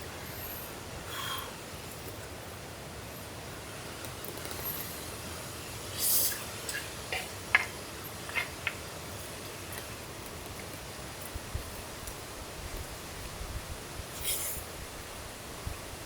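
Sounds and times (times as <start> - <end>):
rain: 0.0 - 16.0
brief hiss: 14.1 - 14.7.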